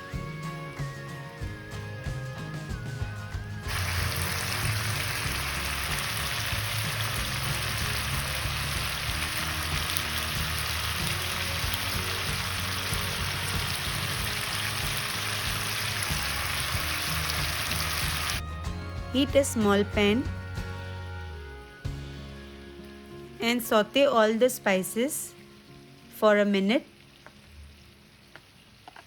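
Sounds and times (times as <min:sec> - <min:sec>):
quiet background music: 0:00.0 - 0:28.6
chicken sizzling in a pan: 0:03.7 - 0:18.4.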